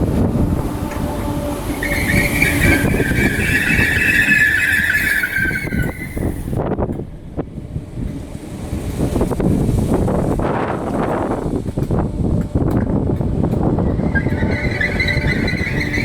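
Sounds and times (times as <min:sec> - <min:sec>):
electric train running on rails: 0:00.0 - 0:16.0
high brake squeal: 0:00.7 - 0:06.6, 0:13.8 - 0:16.0.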